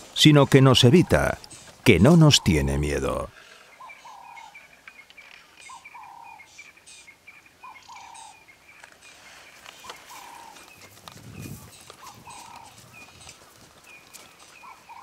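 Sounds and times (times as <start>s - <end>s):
bird two-part call: 11.6s - 13.2s.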